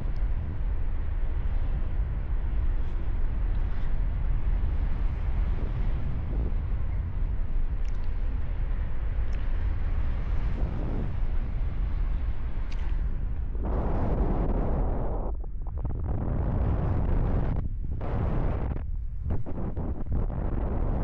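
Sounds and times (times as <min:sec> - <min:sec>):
wind rushing over microphone: 0:00.0 - 0:21.0
faint ticks: 0:07.7 - 0:08.3, 0:09.2 - 0:09.7.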